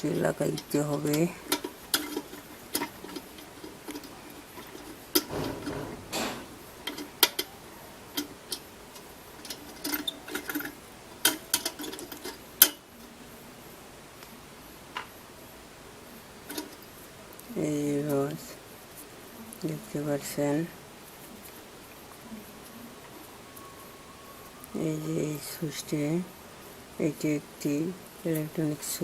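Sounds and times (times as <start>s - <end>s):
screwdriver clicking and tapping metal: 0.0s - 7.5s, 8.1s - 12.8s.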